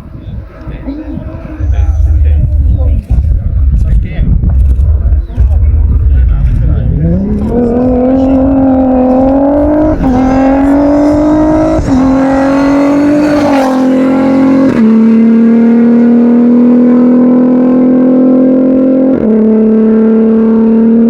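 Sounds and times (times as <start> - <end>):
gear changes: 1.2 - 15.6
car engine at high revs: 4.8 - 21.0.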